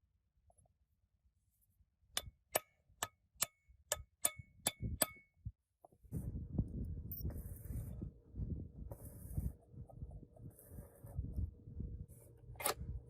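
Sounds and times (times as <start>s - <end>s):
hammer striking steel: 2.2s - 5.3s
low rumbling noise: 6.1s - 13.0s.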